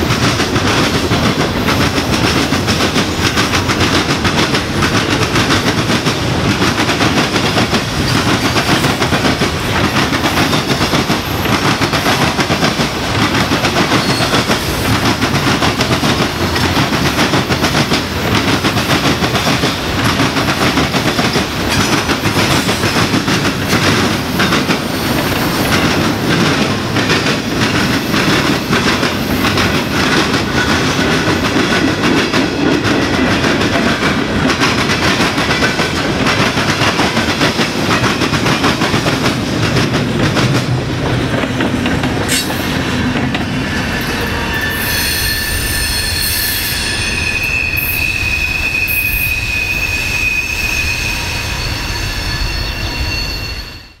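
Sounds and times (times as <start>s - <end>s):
train wheels banging over crossing: 0.0s - 47.6s
high wheel squeal: 13.9s - 14.8s, 43.4s - 54.0s.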